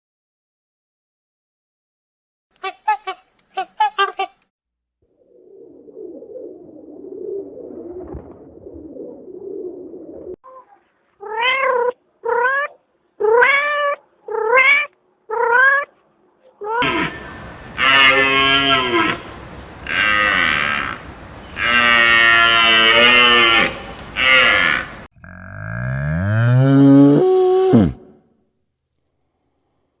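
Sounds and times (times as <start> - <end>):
low wavering murmur: 16.8 - 25.1
cow mooing: 16.8 - 27.2.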